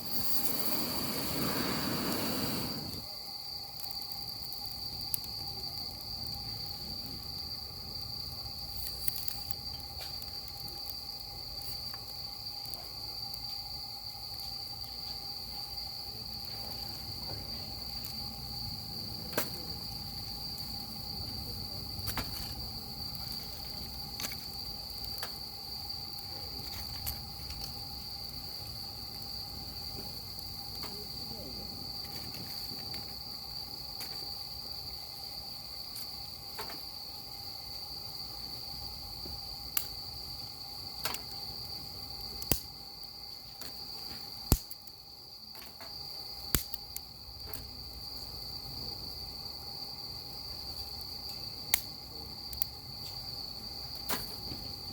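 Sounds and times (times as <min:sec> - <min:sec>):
wood fire crackling: 0:00.0 - 0:48.4, 0:49.6 - 0:54.9
crickets trilling: 0:00.0 - 0:54.9.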